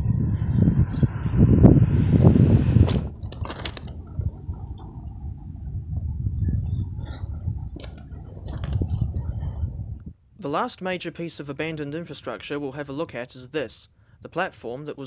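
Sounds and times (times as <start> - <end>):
low uneven rumble: 0.0 - 10.1
insects chirring: 0.0 - 15.0.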